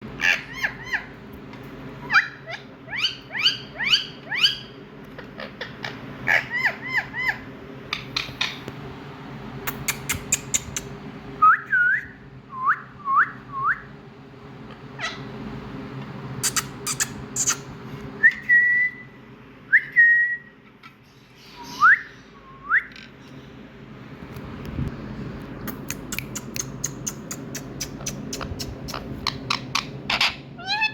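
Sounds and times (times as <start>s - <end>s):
low steady hum: 0.0s - 30.9s
parakeet squawks and whistles: 0.2s - 1.2s, 2.0s - 8.6s, 15.0s - 15.3s, 16.4s - 19.0s, 21.1s - 23.1s, 26.2s - 30.9s.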